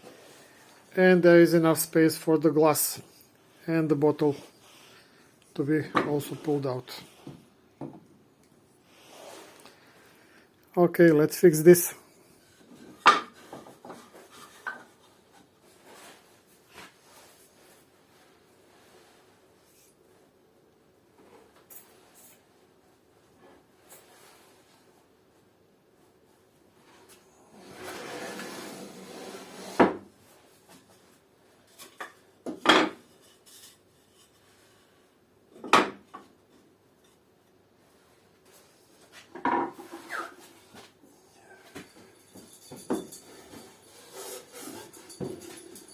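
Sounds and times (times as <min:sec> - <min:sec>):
wood scraping: 0:27.6 - 0:30.0, 0:43.3 - 0:45.8
wood rubbing: 0:43.0 - 0:45.8.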